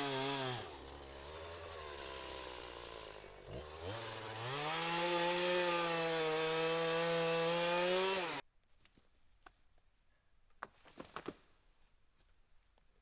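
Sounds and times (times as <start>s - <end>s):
chainsaw cutting through tree: 0.0s - 8.4s.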